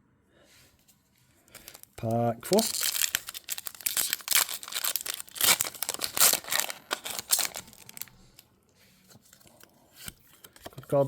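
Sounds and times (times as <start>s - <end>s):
foil wrapper tearing and crinkling: 1.5s - 8.4s.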